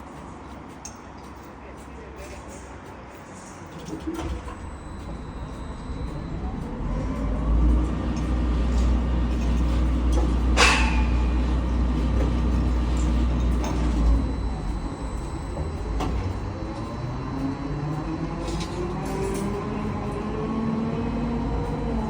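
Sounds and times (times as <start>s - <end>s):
diesel truck engine revving: 4.5s - 22.0s.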